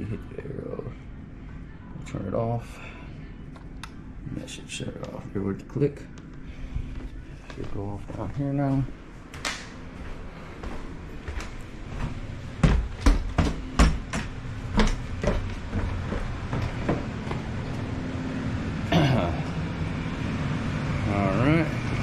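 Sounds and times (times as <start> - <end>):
gas furnace humming: 0.0 - 22.0
heavy footsteps down stairs: 6.8 - 18.1.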